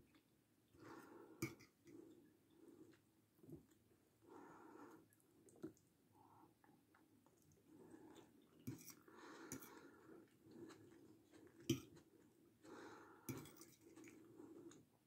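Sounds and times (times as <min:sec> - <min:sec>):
close-up chewing: 0:06.6 - 0:15.0.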